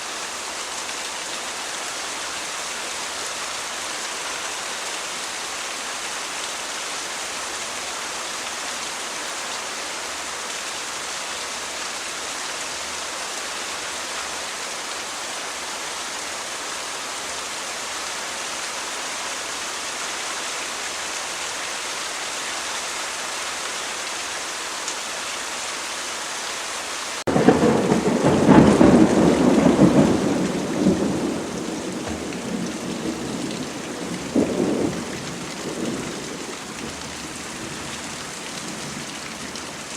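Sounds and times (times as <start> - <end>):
steady rain falling: 0.0 - 39.9
thunderclap and rumbling thunder: 27.3 - 37.0.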